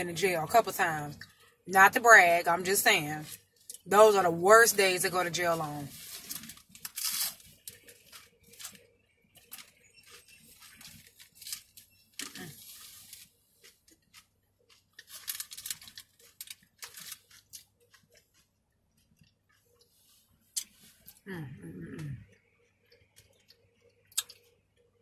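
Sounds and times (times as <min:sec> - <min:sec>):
paper wrapper rustling: 0:05.9 - 0:13.4, 0:15.0 - 0:17.6
crunchy bites and chewing: 0:06.3 - 0:21.2, 0:23.2 - 0:24.6.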